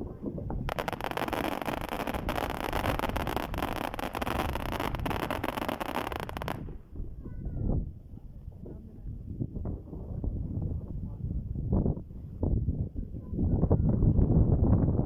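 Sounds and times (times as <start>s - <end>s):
wind rumble on microphone: 0.0s - 15.0s
fireworks crackling: 0.5s - 6.8s.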